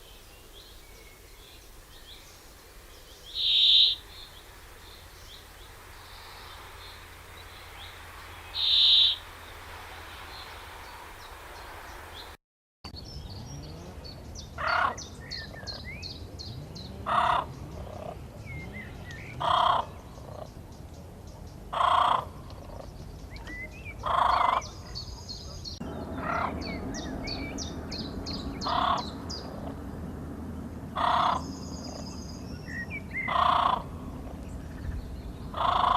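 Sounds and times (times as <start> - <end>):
bird calling: 3.0 - 12.3, 17.0 - 20.6, 21.7 - 29.8, 31.0 - 35.9.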